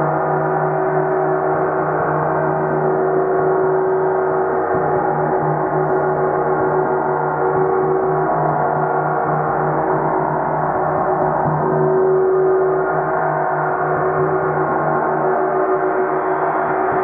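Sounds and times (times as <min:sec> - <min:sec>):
low pulsing warbling tone: 0:00.8 - 0:17.0
gong ringing: 0:02.4 - 0:13.1.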